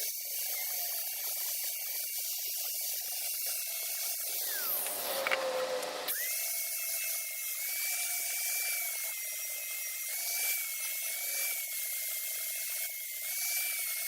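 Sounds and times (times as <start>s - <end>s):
electric sander whining: 3.9s - 7.2s.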